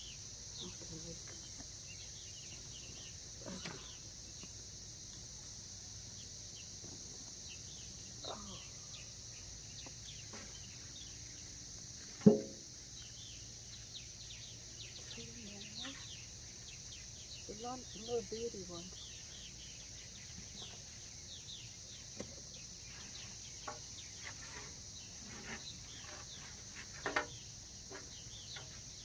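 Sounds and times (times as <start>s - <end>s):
high insect drone: 0.0s - 29.0s
birds chirping: 12.9s - 26.7s, 27.3s - 29.0s.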